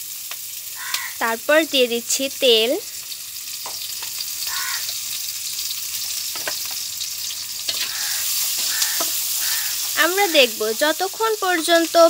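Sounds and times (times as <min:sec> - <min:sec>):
oil sizzling in a wok: 0:00.0 - 0:12.0
spatula scraping and knocking pan: 0:07.6 - 0:11.3.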